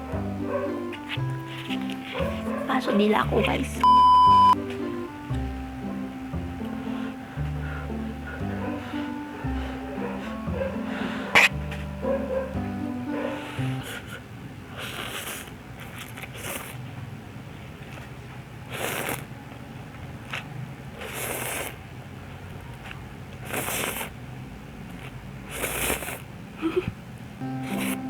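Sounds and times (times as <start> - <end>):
person slurping noodles: 13.4 - 16.8, 18.7 - 19.3, 21.0 - 21.9, 23.4 - 24.2, 24.9 - 26.9, 27.6 - 28.0.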